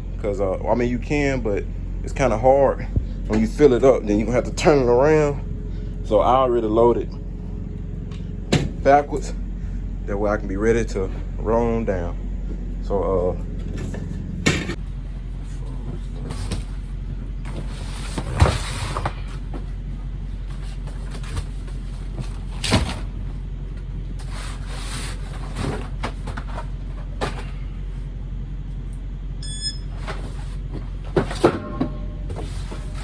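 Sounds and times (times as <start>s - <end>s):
steady low hum: 0.0s - 33.0s
boxes thudding and scuffing: 15.9s - 19.8s, 24.2s - 27.7s, 29.9s - 33.0s
barcode scanner beep: 29.4s - 29.9s.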